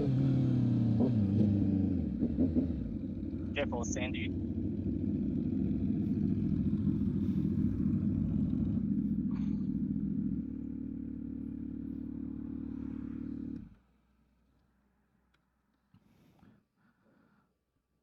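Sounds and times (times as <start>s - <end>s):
motorcycle engine under throttle: 0.0s - 3.6s, 4.3s - 13.7s.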